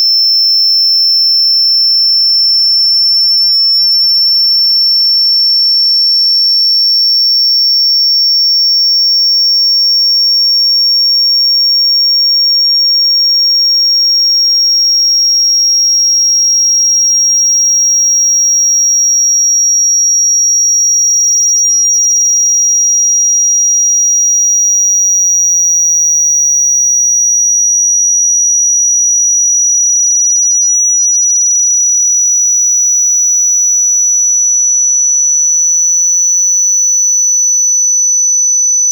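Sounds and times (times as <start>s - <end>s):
high-pitched sine tone: 0.0s - 38.9s.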